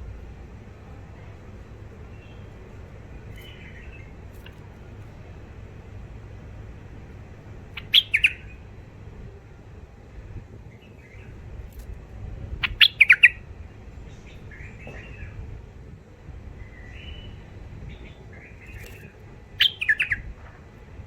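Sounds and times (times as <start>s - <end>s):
bulbul sharp calls: 7.7s - 8.6s, 12.6s - 13.4s, 18.6s - 20.4s
soft bird chattering: 7.7s - 8.6s, 12.6s - 13.4s, 18.1s - 20.4s.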